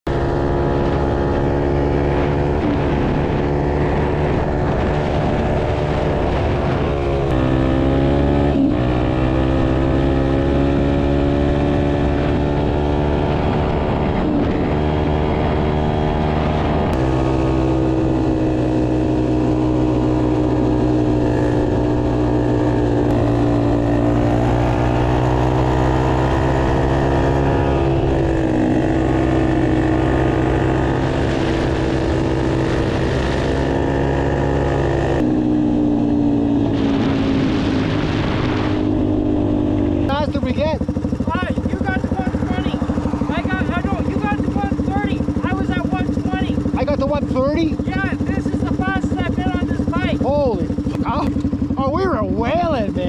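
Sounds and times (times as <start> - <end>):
dirt bike engine at full throttle: 0.0 - 53.0.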